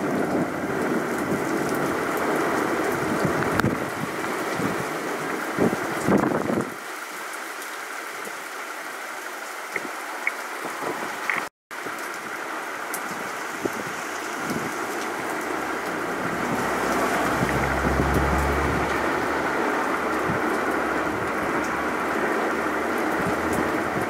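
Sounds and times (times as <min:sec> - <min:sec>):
heavy rain falling: 0:00.0 - 0:24.0
low rumble: 0:15.6 - 0:24.0.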